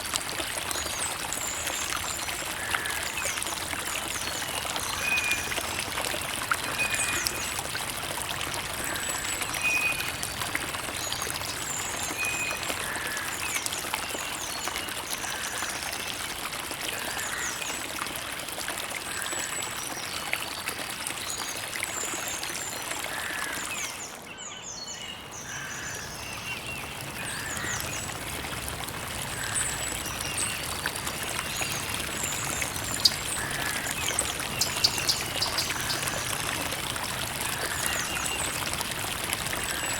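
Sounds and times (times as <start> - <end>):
creek water trickling: 0.0 - 39.9
small birds chirping: 31.6 - 36.1.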